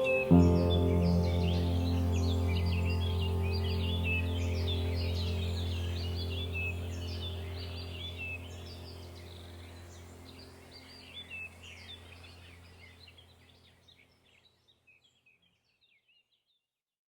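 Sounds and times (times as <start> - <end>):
low steady drone: 0.0 - 13.0
small birds chirping: 0.0 - 16.6.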